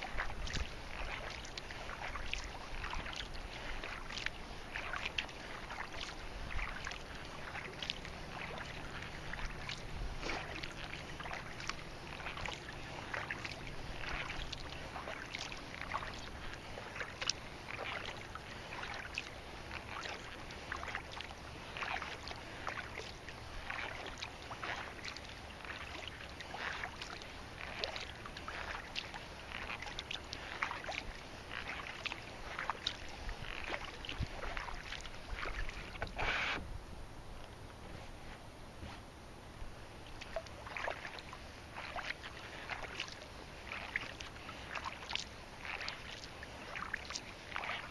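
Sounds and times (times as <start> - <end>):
kayak paddle splashing in water: 0.0 - 36.7, 40.0 - 47.9
water dripping: 40.1 - 47.9.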